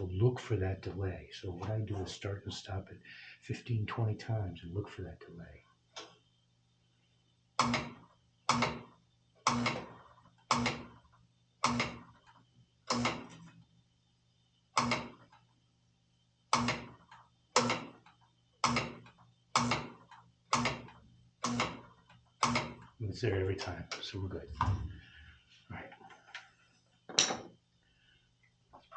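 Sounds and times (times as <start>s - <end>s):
low steady hum: 0.0s - 7.6s, 22.1s - 28.9s.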